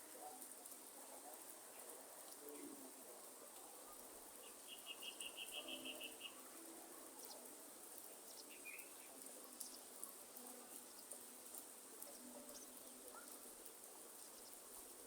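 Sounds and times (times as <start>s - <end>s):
faint drip ticks: 0.0s - 15.0s
light rain: 0.0s - 15.0s
faint high insect hiss: 0.2s - 15.0s
bird chirp: 4.4s - 6.4s.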